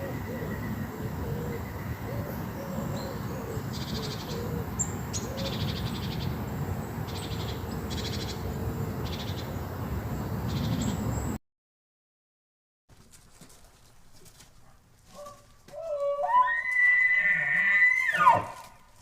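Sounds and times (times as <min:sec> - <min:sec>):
faint wavering lower calls: 0:15.2 - 0:18.7
high buzzy animal trills: 0:15.8 - 0:18.6.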